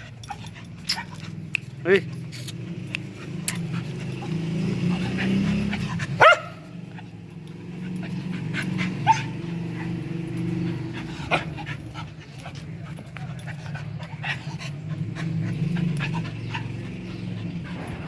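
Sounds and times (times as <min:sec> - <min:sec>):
dog yelping: 0:03.3 - 0:06.9, 0:07.8 - 0:11.5.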